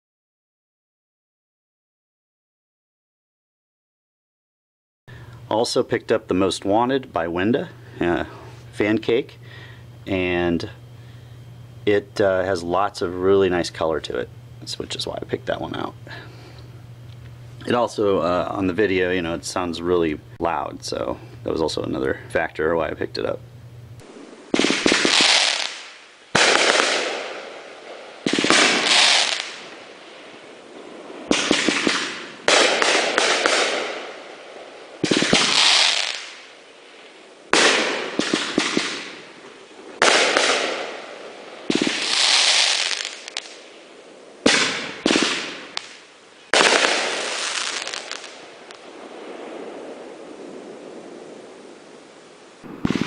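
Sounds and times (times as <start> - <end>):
firework cake bangs with crackle: 24.5 - 27.5, 28.2 - 29.7, 31.3 - 34.1, 35.0 - 36.5, 37.5 - 39.2, 40.0 - 41.0, 41.7 - 43.6, 44.5 - 48.4.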